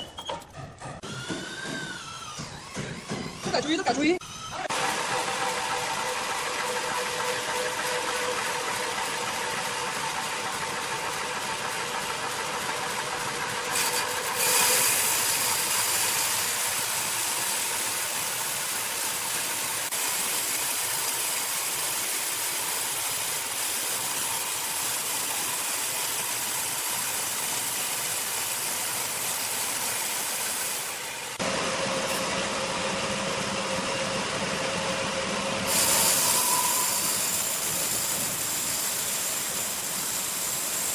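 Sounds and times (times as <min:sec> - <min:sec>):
sawmill machinery hum: 0:00.0 - 0:40.9
hissing sawing noise: 0:35.7 - 0:40.9.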